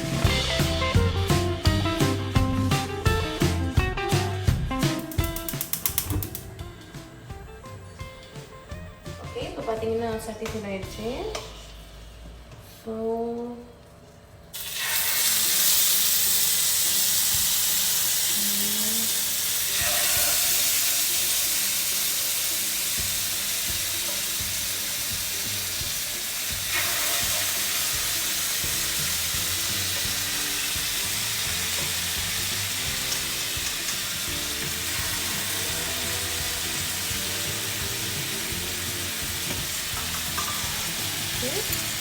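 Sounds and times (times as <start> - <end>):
chicken sizzling in a pan: 14.5 - 42.0.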